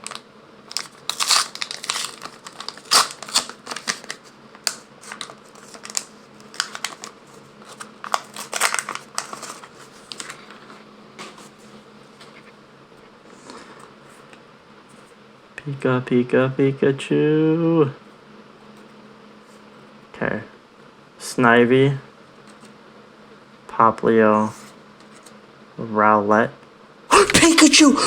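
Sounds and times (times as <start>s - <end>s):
wrapper crinkling being torn open: 0.0s - 10.6s.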